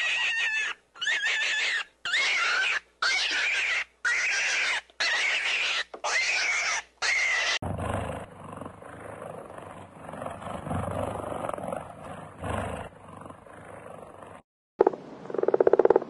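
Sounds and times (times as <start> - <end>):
high-pitched animal cries: 0.0 - 7.6.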